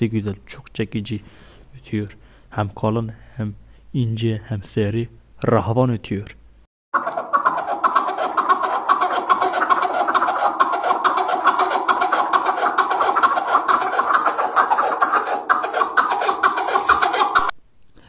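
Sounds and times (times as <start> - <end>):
partridge chuckling call: 7.0 - 17.5.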